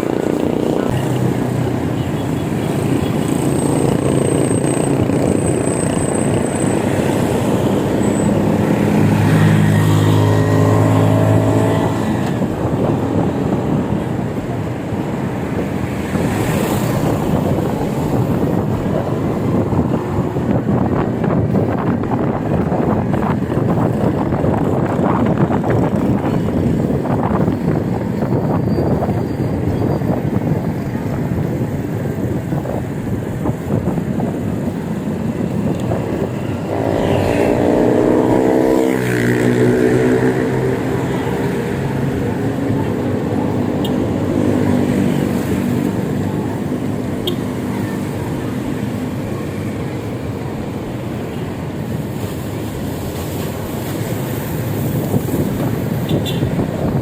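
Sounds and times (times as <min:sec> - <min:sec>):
wind buffeting microphone: 0:00.0 - 0:57.0
vehicle engine passing by: 0:03.0 - 0:13.9, 0:35.4 - 0:49.2.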